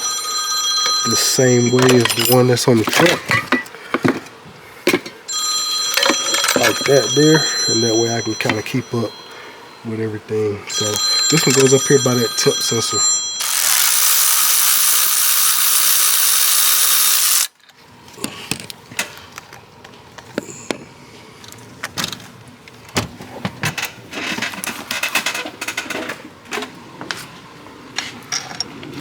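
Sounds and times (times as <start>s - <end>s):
metallic clinks of tools: 1.6s - 3.7s, 5.8s - 9.4s, 10.7s - 17.5s
cordless power tool running: 13.4s - 17.5s.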